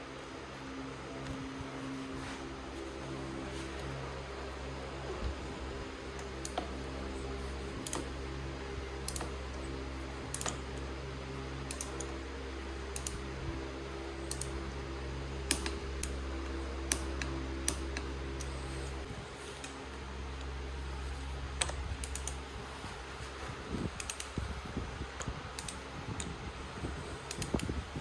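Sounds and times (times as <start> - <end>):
steady low hum: 0.0 - 28.0
light clicks: 3.4 - 11.0, 11.6 - 13.4, 14.1 - 14.8, 15.4 - 26.4, 27.2 - 27.9.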